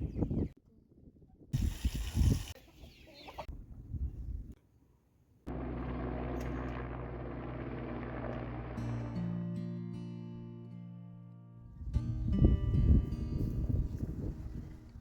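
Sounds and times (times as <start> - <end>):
chickens clucking: 2.6 - 3.5.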